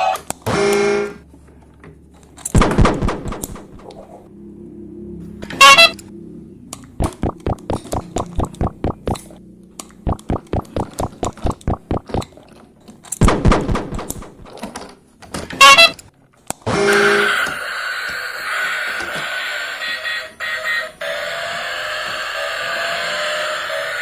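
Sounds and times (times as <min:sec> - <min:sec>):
rapid taps: 0:07.0 - 0:09.3, 0:10.0 - 0:12.2
horn-like toot: 0:16.8 - 0:24.0.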